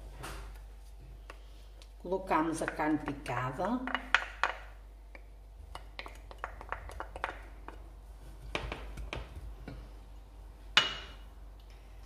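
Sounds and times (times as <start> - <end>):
utensil tapping against pot: 2.6 - 7.8.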